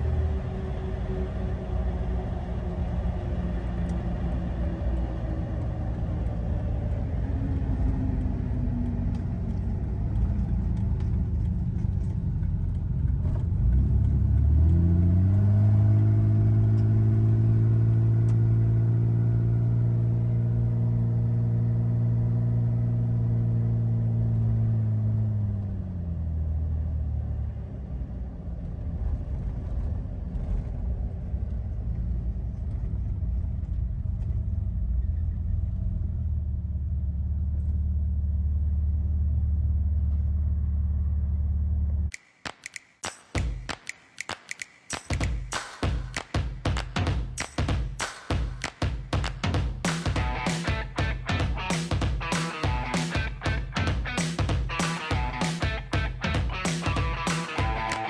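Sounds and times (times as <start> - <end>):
strong steady drone: 0.0 - 10.7
tyre and road noise: 0.0 - 21.1, 45.2 - 58.0
car engine running: 0.0 - 26.0, 48.9 - 58.0.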